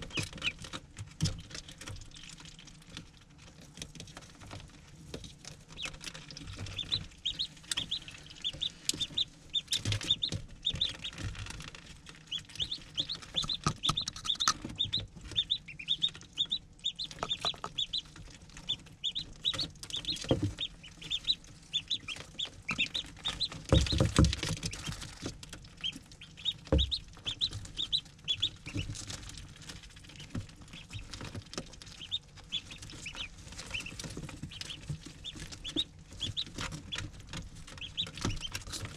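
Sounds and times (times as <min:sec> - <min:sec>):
ducklings peeping: 0:00.0 - 0:38.9
knocks and bumps: 0:23.4 - 0:25.4.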